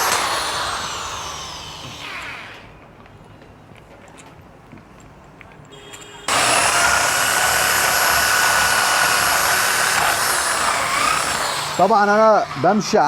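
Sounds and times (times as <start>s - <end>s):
power grinder whining: 0.0s - 2.8s, 6.3s - 13.0s.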